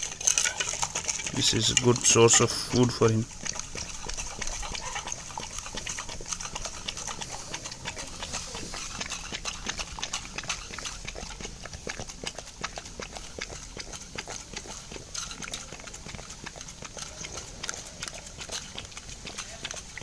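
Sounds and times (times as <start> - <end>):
dog chewing wetly: 0.0 - 20.0.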